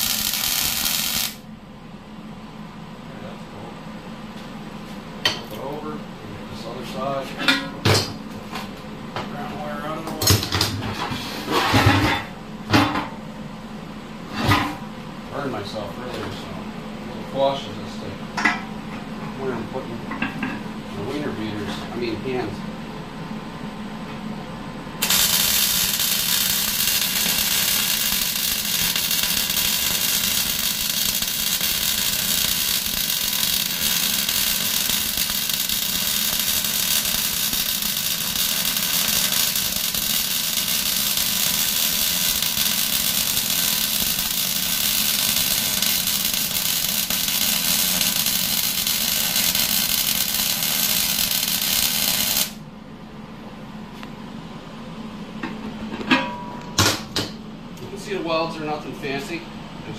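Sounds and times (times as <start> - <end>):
welder sizzling hiss: 0.0 - 1.4, 25.0 - 52.6.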